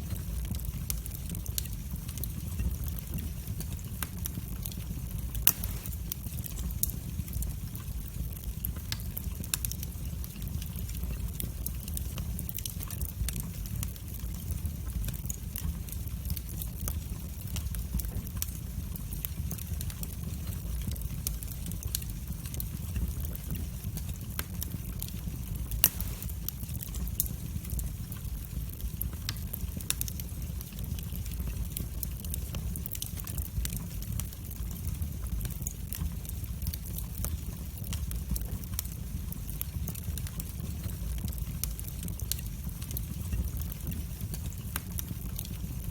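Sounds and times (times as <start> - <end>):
fire crackling and snapping: 0.0 - 45.9
low rumble of flames: 0.0 - 45.9
loud pop from fire: 5.4 - 6.2, 25.8 - 26.6.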